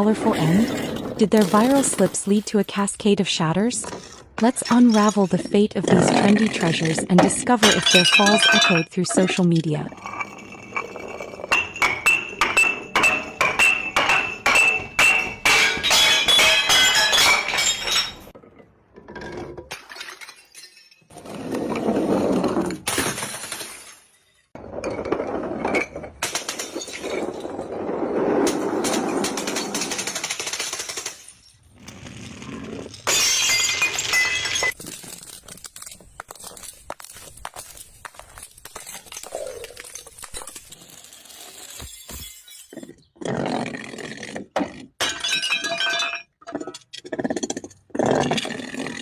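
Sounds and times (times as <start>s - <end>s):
glass bottles tumbling down stairs: 4.4s - 18.6s, 19.2s - 32.1s, 33.0s - 43.1s, 45.0s - 46.8s
glass breaking: 7.2s - 18.4s, 19.7s - 21.1s, 22.8s - 24.5s, 33.0s - 42.9s, 45.0s - 46.4s.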